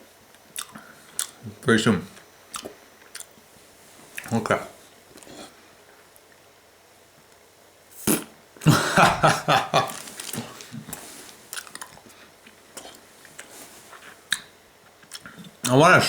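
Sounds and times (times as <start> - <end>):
small mouth clicks: 0.6 - 1.4, 14.3 - 15.5.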